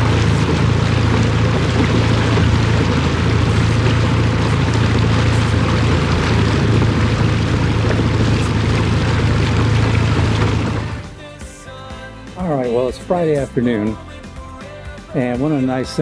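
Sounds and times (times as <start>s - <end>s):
boat motor humming: 0.0s - 11.2s
water rush: 0.0s - 11.2s.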